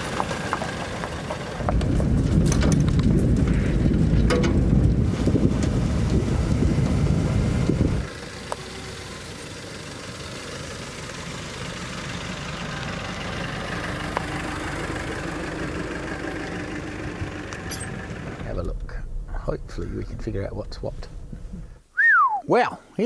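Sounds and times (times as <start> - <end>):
vehicle engine running: 0.0 - 21.8
wind rumble on microphone: 1.6 - 8.1, 18.3 - 21.8.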